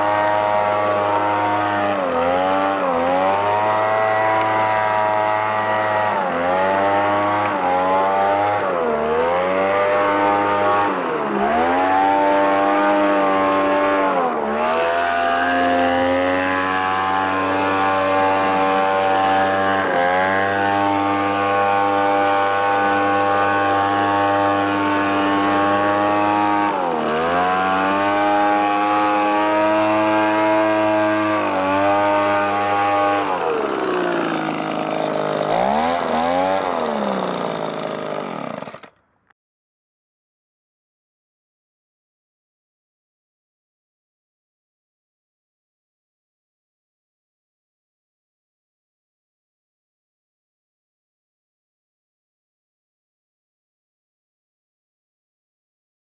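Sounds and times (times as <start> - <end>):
leaf blower engine revving: 0.0 - 39.0.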